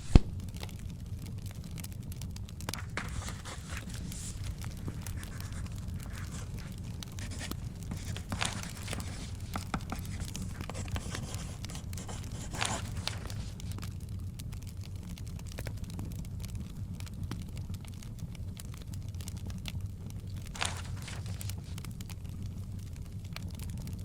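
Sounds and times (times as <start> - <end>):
book pages turning: 0.0 - 0.3, 2.7 - 13.9, 20.4 - 21.8
wood fire crackling: 0.0 - 24.0.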